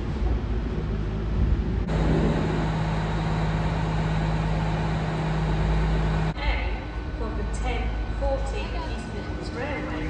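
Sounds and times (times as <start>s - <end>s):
diesel train engine rumble: 1.6s - 6.4s
faint high whine: 1.9s - 6.4s.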